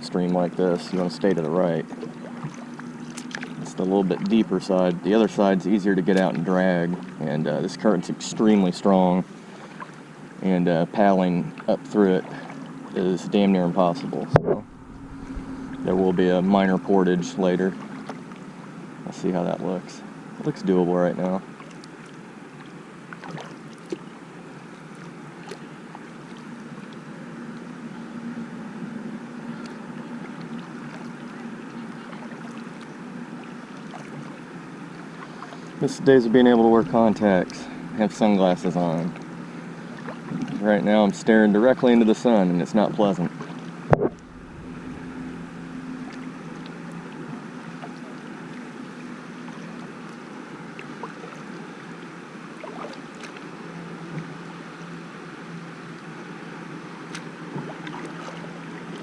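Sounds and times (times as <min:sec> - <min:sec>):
small water splashes: 0:00.0 - 0:19.8, 0:20.4 - 0:28.0, 0:28.7 - 0:54.9, 0:55.8 - 0:59.0
faint low hum: 0:00.0 - 0:59.0
river water rushing: 0:14.4 - 0:16.6, 0:42.2 - 0:55.4.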